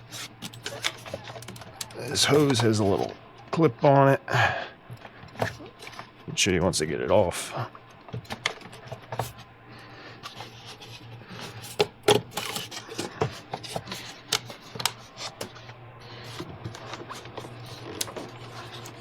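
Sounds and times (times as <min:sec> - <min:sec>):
tools clicking and knocking on plastic: 0:00.1 - 0:03.6, 0:08.1 - 0:09.4, 0:11.4 - 0:15.6.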